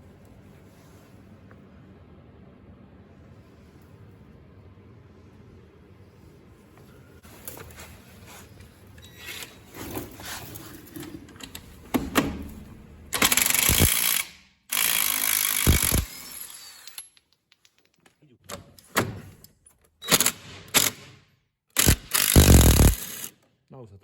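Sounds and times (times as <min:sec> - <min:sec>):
impact wrench hammering bolt: 0:13.2 - 0:16.2, 0:21.8 - 0:23.3.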